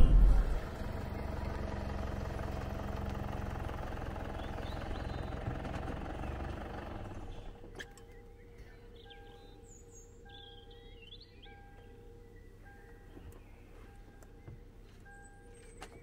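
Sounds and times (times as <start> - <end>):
suv engine running: 0.0 - 9.6.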